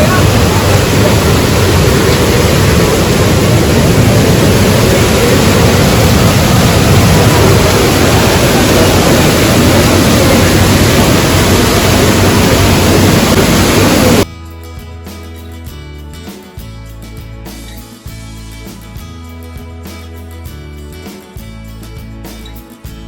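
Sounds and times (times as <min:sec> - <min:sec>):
waterfall rushing: 0:00.0 - 0:14.3
guitar music: 0:00.0 - 0:23.0.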